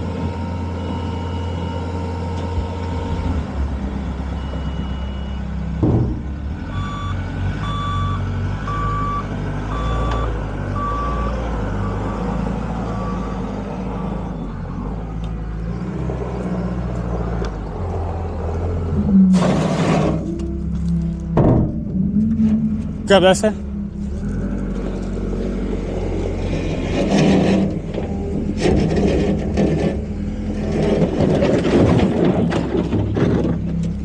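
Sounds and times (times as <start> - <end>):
loader engine running: 0.0 - 34.0
knock: 5.8 - 6.2
backup alarm beeping: 6.7 - 14.7.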